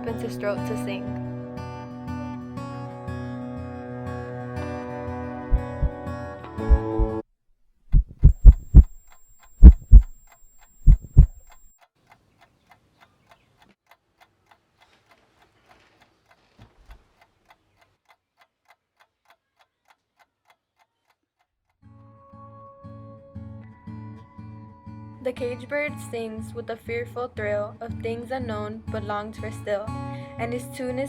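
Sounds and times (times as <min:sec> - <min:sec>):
clock ticking faintly: 0:05.5 - 0:06.0, 0:07.9 - 0:20.9
heartbeat double thumps: 0:05.5 - 0:06.0, 0:06.6 - 0:07.2, 0:07.8 - 0:11.7.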